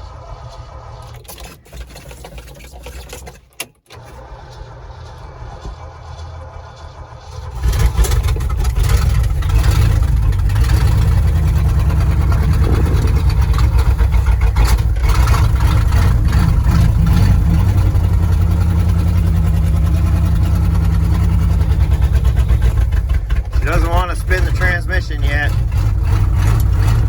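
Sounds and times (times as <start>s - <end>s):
pickup engine starting and running: 0.0s - 27.0s.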